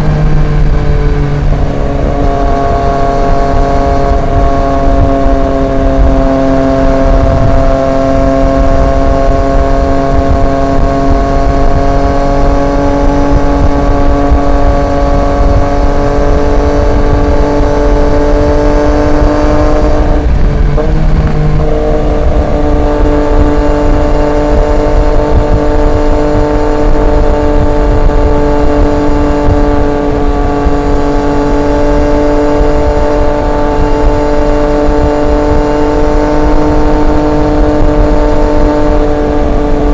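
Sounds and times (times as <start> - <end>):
low rushing noise: 0.0 - 39.9
motorcycle engine cruising: 0.0 - 39.9.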